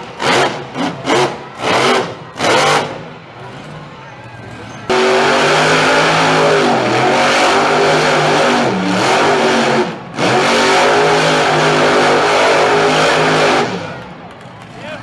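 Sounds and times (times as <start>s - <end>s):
truck engine revving hard: 0.0s - 3.9s, 4.6s - 14.2s.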